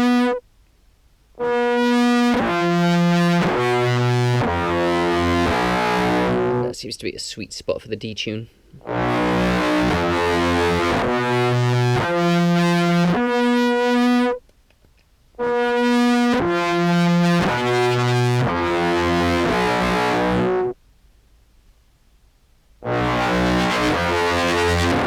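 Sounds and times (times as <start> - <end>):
buzzy fuzzed clarinet notes: 0.0 - 0.4, 1.4 - 6.8, 8.8 - 14.4, 15.4 - 20.8, 22.8 - 25.0.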